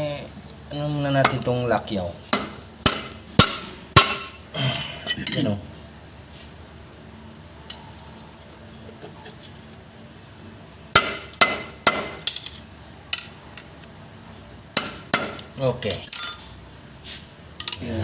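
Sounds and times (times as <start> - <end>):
hammer striking metal: 2.3 - 4.4, 11.0 - 12.3.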